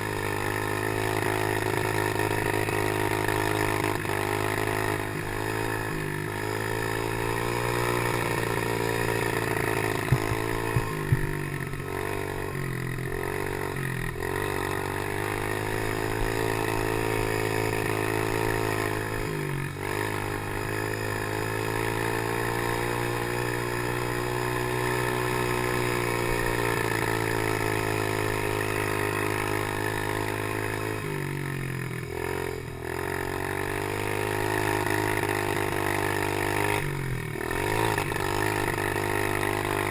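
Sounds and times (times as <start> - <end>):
motorcycle engine revving: 0.0 - 39.9
sharp knocks: 10.1 - 11.4.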